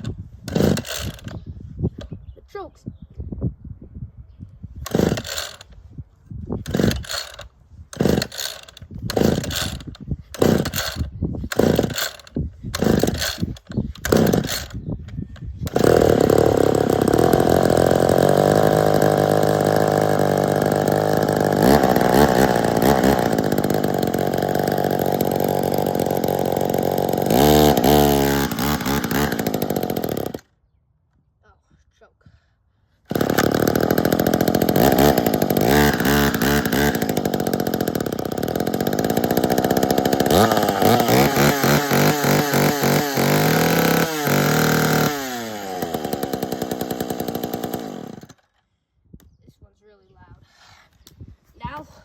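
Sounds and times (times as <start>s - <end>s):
chainsaw engine running and revving: 0.0s - 1.3s, 4.9s - 5.7s, 6.7s - 7.4s, 8.0s - 14.8s, 15.6s - 30.5s, 33.1s - 48.4s
chainsaw starter cord pulls: 0.0s - 1.4s, 4.8s - 5.8s, 6.6s - 30.6s, 33.0s - 48.6s.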